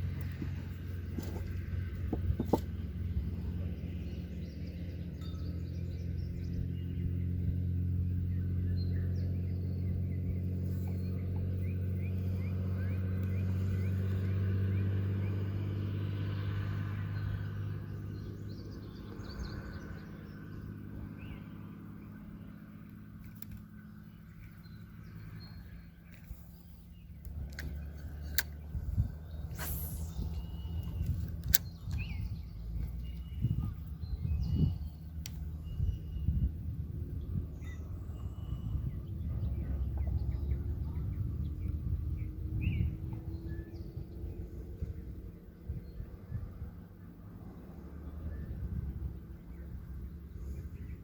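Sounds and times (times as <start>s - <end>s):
birds chirping: 0.0s - 47.2s
engine humming: 0.0s - 51.0s
sharp clicks: 27.2s - 28.8s, 29.5s - 32.2s.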